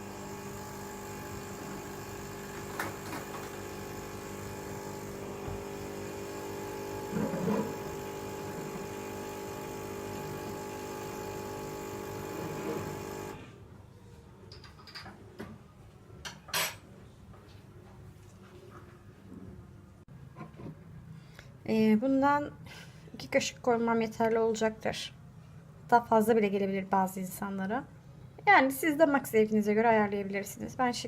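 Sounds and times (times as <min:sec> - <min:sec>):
coffee machine pump humming: 0:00.0 - 0:13.6.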